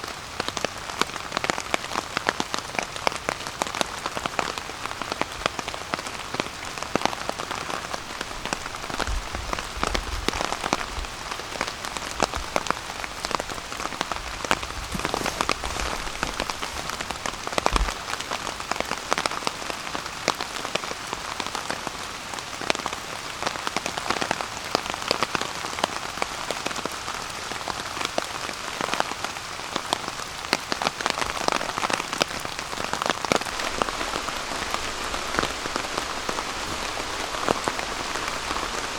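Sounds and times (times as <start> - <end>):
rain falling on a tarp: 0.0 - 38.9
low thumps: 14.1 - 18.2.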